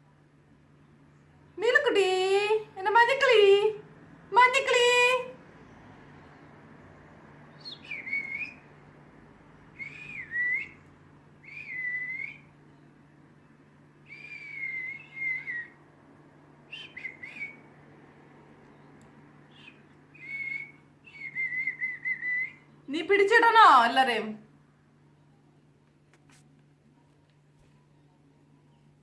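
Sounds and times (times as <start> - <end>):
budgerigars chirping whistles: 7.5 - 8.6, 14.1 - 15.7.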